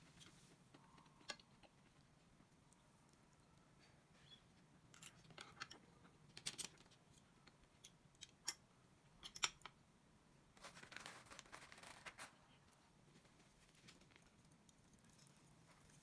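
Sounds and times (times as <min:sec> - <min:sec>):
crinkly rustling: 0:10.6 - 0:16.0.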